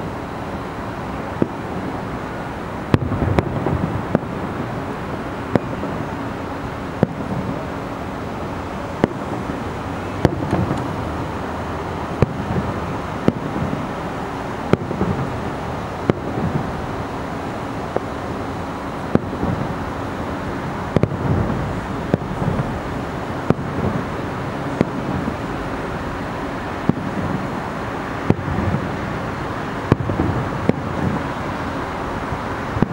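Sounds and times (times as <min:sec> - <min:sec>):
fireworks bursting: 0:00.0 - 0:32.9
low background rumble: 0:00.0 - 0:32.9.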